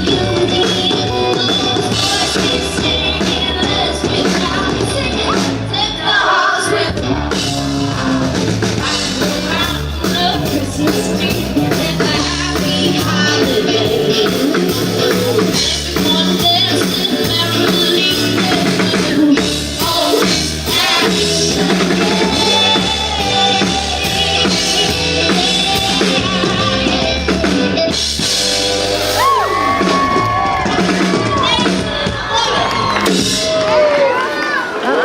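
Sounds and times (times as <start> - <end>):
steady bass line: 0.0 - 33.8
drum kit: 0.0 - 34.2
live rock band playing: 0.0 - 34.4.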